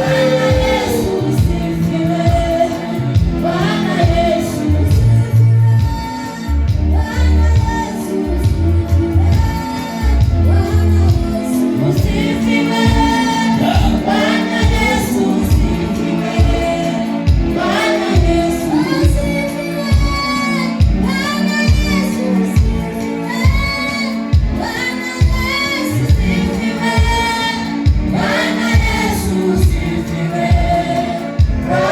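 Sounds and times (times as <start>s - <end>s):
held bass notes: 0.0s - 16.6s
steady bass drum beat: 0.0s - 20.2s, 24.4s - 31.9s
band playing: 0.0s - 31.9s
voices singing: 0.0s - 31.9s.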